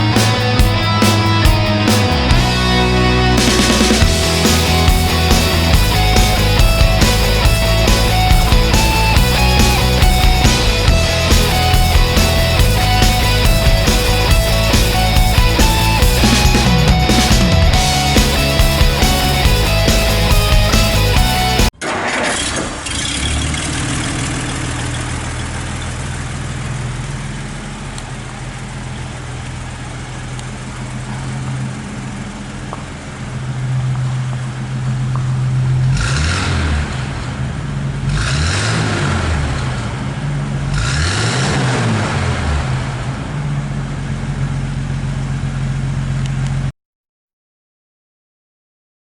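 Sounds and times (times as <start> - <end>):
car engine idling and revving: 0.0 - 21.7, 22.4 - 46.7.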